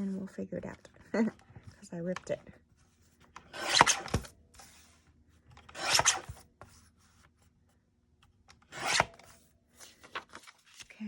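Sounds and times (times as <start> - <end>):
paper rasping strokes: 5.7 - 6.4, 8.7 - 9.2.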